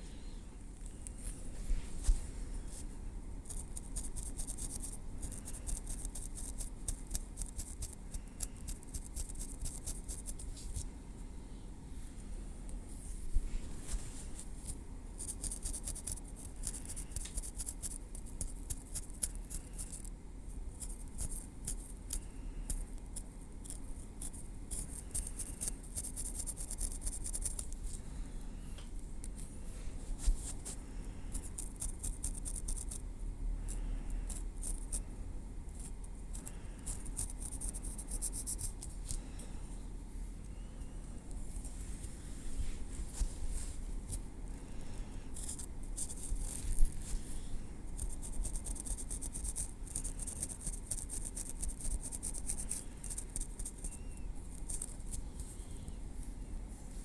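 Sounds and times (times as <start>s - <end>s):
tweezers clicking in hair: 3.4s - 10.4s, 15.2s - 20.2s, 20.8s - 27.8s, 31.3s - 33.1s, 33.7s - 35.0s, 35.7s - 38.9s, 48.0s - 55.2s.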